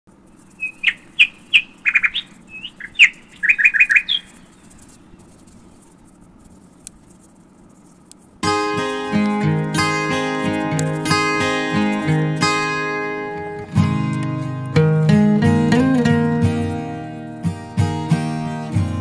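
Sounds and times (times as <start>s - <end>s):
small bird chirping: 0.2s - 6.0s
acoustic guitar music: 8.4s - 19.0s.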